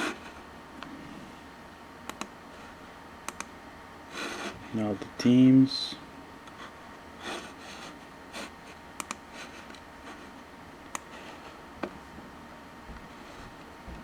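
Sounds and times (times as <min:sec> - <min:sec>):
sharp mouse clicks: 0:02.1 - 0:02.3, 0:03.3 - 0:03.5, 0:09.0 - 0:09.2.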